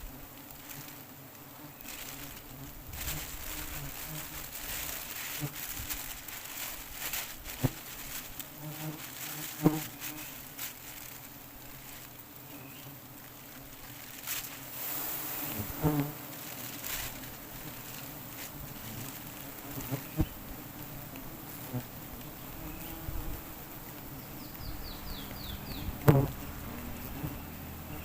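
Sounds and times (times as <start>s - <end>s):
honeybees buzzing: 0.0s - 28.0s.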